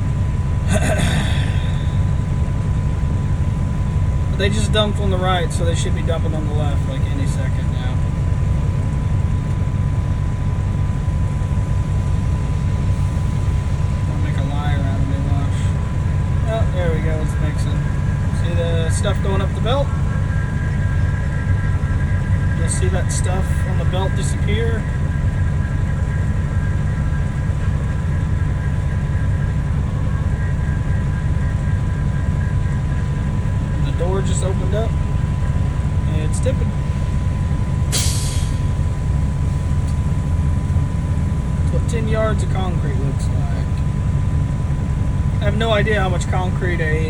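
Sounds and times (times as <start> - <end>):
conveyor drives running: 0.0 - 47.0
faint high whine: 0.0 - 47.0
heavy machinery rumbling: 0.0 - 47.0
idling diesel truck engine: 0.0 - 47.0.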